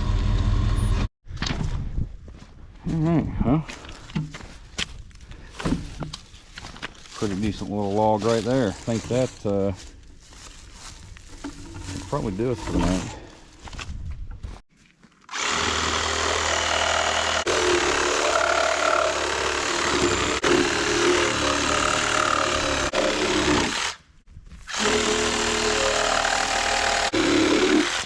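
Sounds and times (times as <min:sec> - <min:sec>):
cordless saw cutting log: 0:11.7 - 0:13.2, 0:15.3 - 0:24.0, 0:24.7 - 0:28.0.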